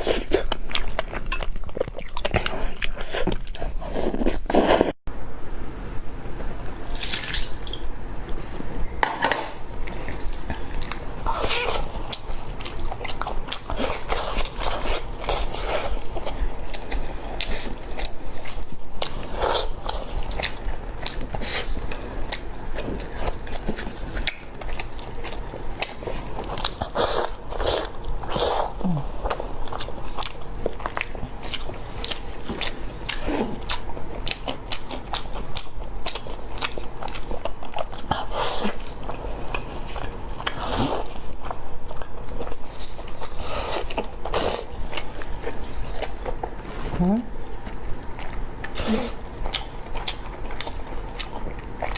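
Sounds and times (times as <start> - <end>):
wet chewing and lip smacks: 47.3 - 51.9.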